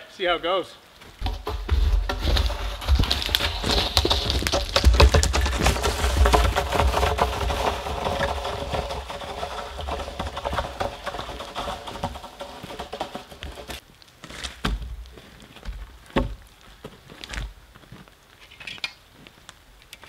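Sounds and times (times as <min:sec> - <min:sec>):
footsteps crunching in wet snow: 0:00.9 - 0:18.5
poles dragging on snow: 0:01.1 - 0:17.5
log knocking on snow: 0:01.2 - 0:13.8.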